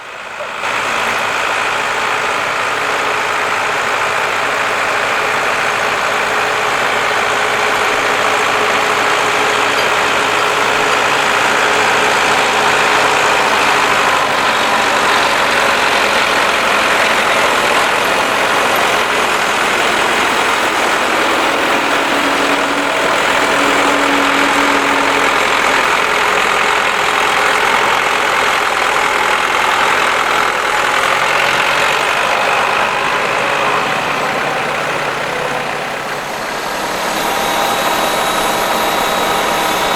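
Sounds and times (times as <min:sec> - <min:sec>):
tractor engine running: 0:00.0 - 0:39.9
brief steady tone: 0:21.3 - 0:26.6.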